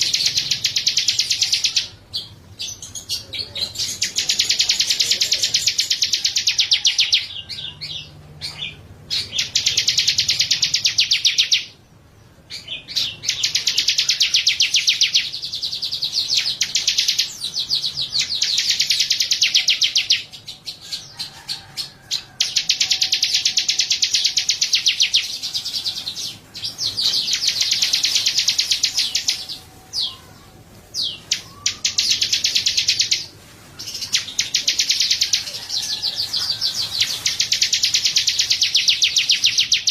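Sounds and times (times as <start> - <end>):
songbird high-pitched trills: 22.4 - 33.3.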